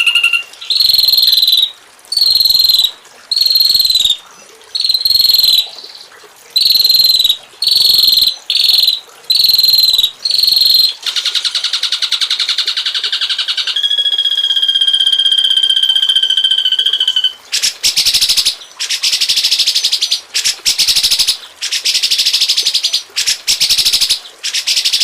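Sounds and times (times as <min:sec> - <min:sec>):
cricket buzzy chirps: 0:00.0 - 0:05.7, 0:06.6 - 0:11.0.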